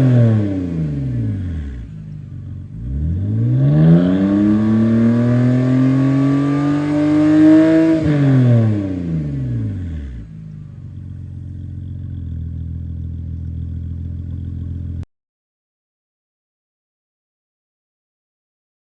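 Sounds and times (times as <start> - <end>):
car engine revving and idling: 0.0 - 15.0.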